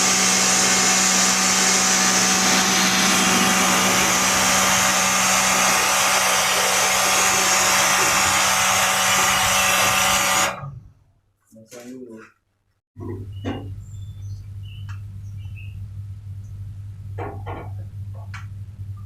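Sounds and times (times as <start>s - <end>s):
machine humming and hissing: 0.0s - 10.7s.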